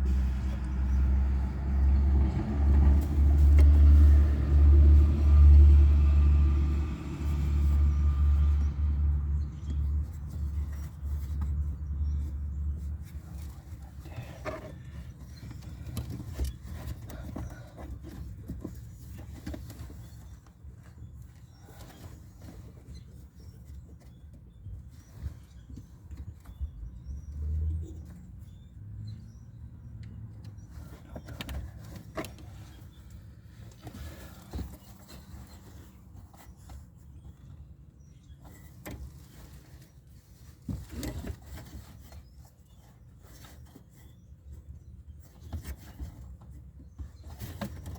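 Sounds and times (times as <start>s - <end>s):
low steady rumble: 0.0s - 23.8s.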